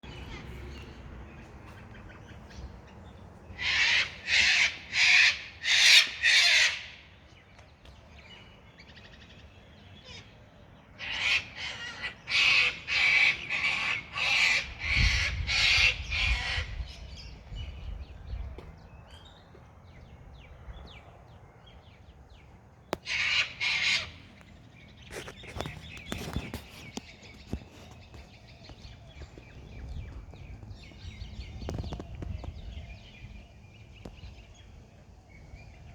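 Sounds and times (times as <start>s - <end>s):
bird harsh calls: 0.0s - 7.2s, 10.0s - 18.4s, 22.9s - 33.3s.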